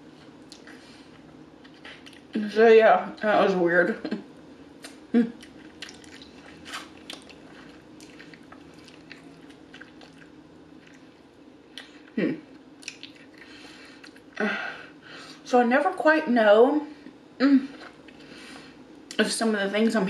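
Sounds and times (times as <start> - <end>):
wet mouth chewing clicks: 12.8 - 13.4.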